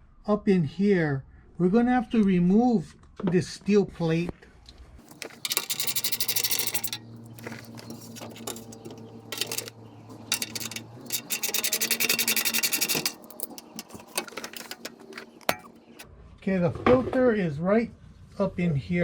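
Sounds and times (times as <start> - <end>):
metal clinks: 5.0 - 16.0
ratchet clicking rapidly: 5.0 - 16.0.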